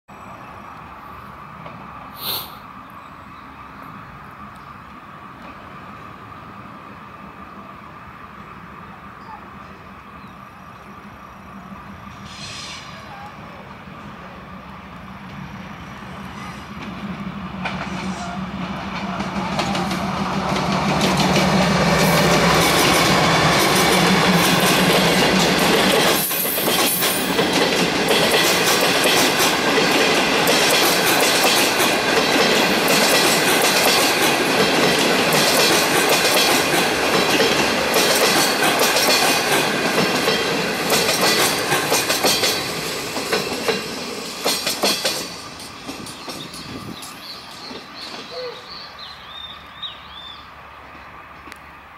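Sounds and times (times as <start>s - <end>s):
diesel locomotive engine drone: 0.1s - 51.9s
train wheels clattering over rail joints: 16.7s - 48.4s.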